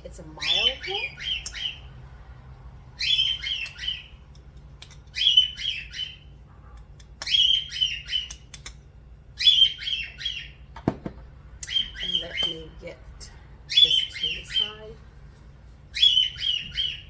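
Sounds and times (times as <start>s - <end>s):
bird chirping loudly: 0.3s - 1.9s, 3.0s - 4.2s, 5.1s - 6.3s, 7.2s - 8.4s, 9.4s - 10.6s, 11.6s - 12.7s, 13.7s - 14.9s, 15.9s - 17.0s.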